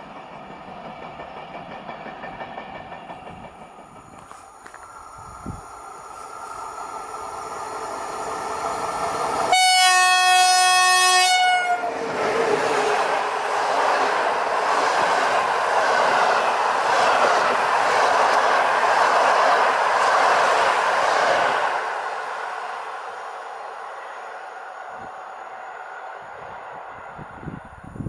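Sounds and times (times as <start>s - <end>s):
electric locomotive rumble: 0.0s - 28.0s
train wheels rushing on rails: 0.0s - 28.0s
train horn chord: 9.5s - 11.9s.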